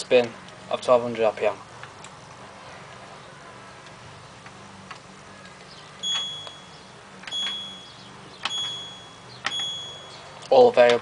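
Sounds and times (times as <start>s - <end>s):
washing machine beeping: 6.0s - 10.4s.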